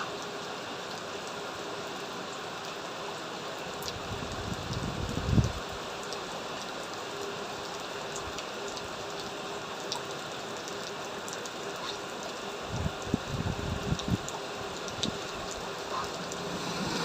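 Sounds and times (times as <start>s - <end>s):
heavy rain falling: 0.0s - 17.0s
raindrops ticking: 2.2s - 17.0s.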